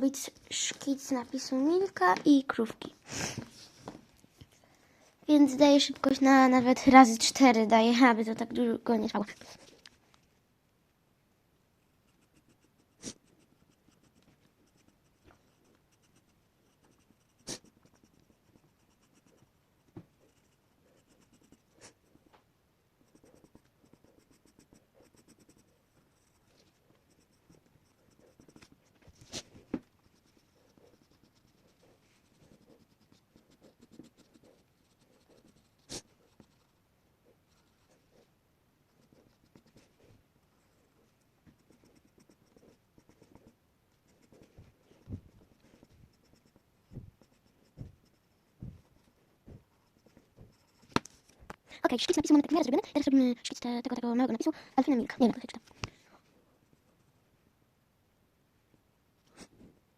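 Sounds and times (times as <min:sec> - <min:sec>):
pencil scratching on paper: 0:09.1 - 0:09.8, 0:12.1 - 0:22.3, 0:23.0 - 0:38.3, 0:38.9 - 0:40.2, 0:41.0 - 0:53.2.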